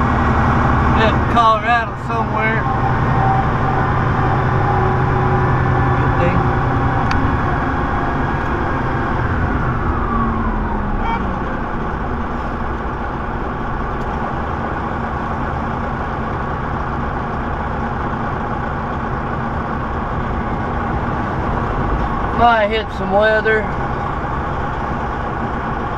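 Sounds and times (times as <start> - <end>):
truck diesel engine driving: 0.0 - 25.9
whine falling in pitch: 2.3 - 14.2.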